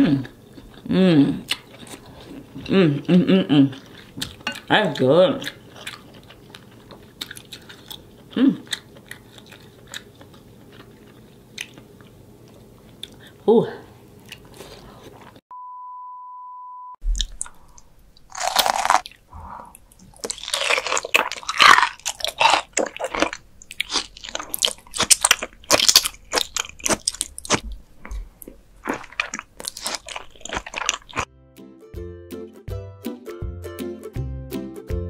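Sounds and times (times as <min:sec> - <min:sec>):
wet chewing and biting: 0:03.8 - 0:13.2, 0:17.1 - 0:31.3
steady beep tone: 0:15.5 - 0:17.0.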